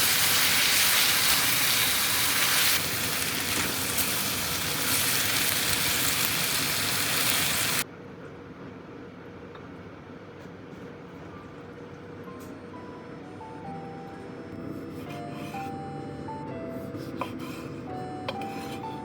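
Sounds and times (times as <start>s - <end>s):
food sizzling in a frying pan: 0.0s - 7.8s.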